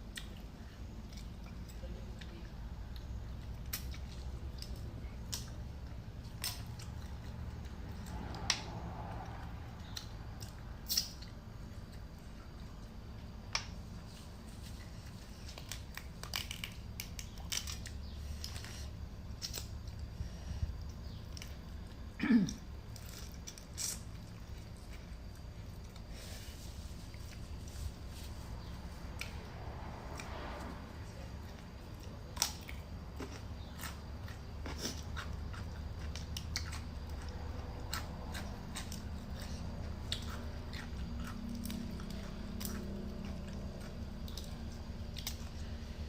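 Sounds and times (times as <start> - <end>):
person chewing: 31.5 - 46.0.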